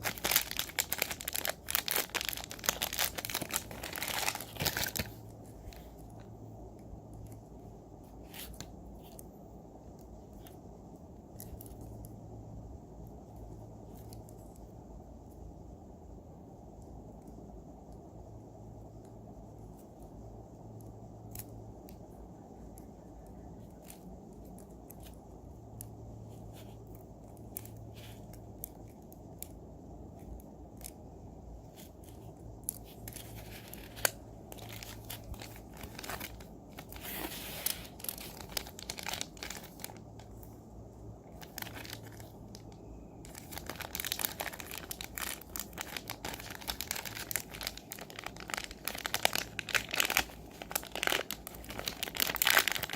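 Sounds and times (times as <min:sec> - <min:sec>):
packaging crinkling and tearing: 0:00.0 - 0:06.0, 0:31.7 - 0:40.6, 0:41.3 - 0:52.9
packaging clicks and rustles: 0:00.0 - 0:06.2, 0:31.7 - 0:40.6, 0:41.3 - 0:52.9.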